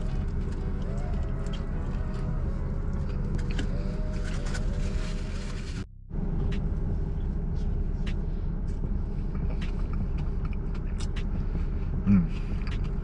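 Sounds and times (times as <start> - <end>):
car cabin engine rumble: 0.0 - 13.0.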